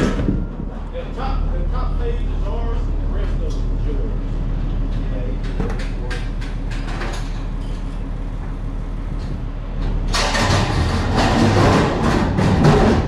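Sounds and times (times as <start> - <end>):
loud rough noise: 0.0 - 7.6, 9.2 - 13.0
vehicle engine humming: 0.0 - 13.0.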